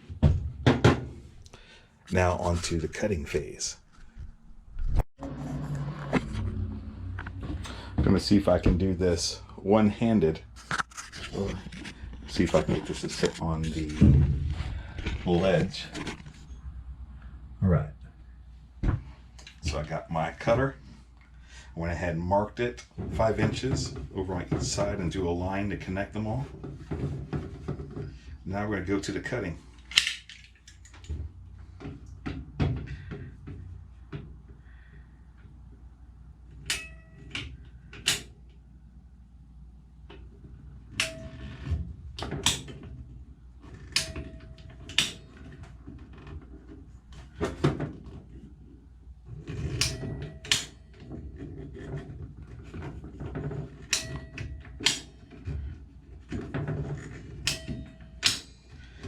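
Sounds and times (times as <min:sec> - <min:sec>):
pipe cutter clicks and knocks: 0:53.2 - 0:55.5, 0:56.4 - 0:58.5.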